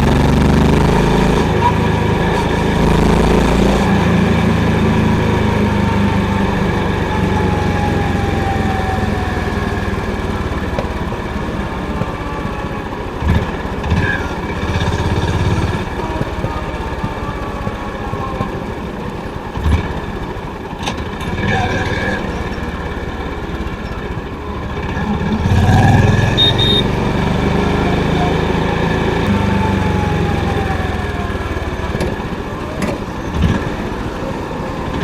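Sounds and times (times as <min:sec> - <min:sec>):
motorcycle engine thumping: 0:01.3 - 0:21.6.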